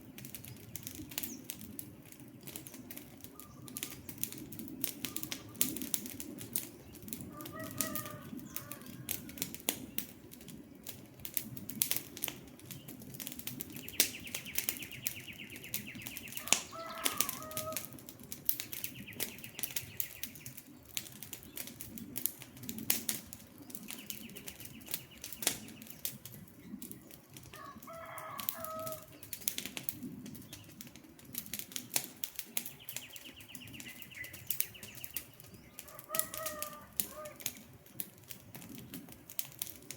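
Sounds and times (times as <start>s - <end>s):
wood fire crackling and popping: 0.0s - 39.9s
bird call: 32.8s - 37.6s.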